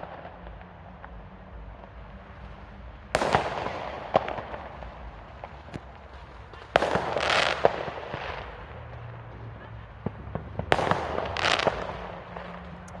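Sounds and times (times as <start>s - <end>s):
fireworks banging and crackling: 0.0s - 13.0s
sharp firework pops: 3.1s - 8.6s, 10.0s - 13.0s.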